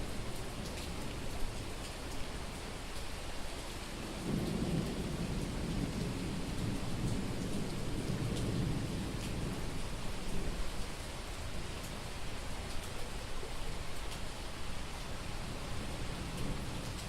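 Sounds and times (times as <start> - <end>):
heavy rain: 0.0 - 17.0
low rumble of thunder: 4.0 - 11.8, 15.2 - 17.0.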